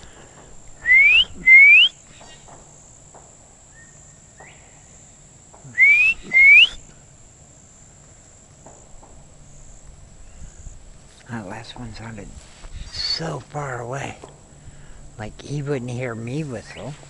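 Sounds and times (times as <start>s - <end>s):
person whistling bird call: 0.8s - 2.0s, 5.7s - 6.9s.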